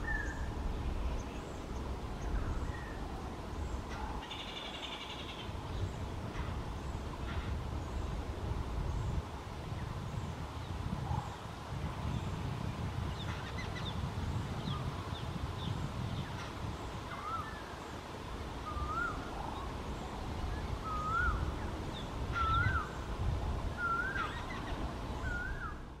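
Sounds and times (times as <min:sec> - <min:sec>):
birds chirping: 0:13.0 - 0:26.0
bird whistling rising and falling: 0:20.8 - 0:21.5.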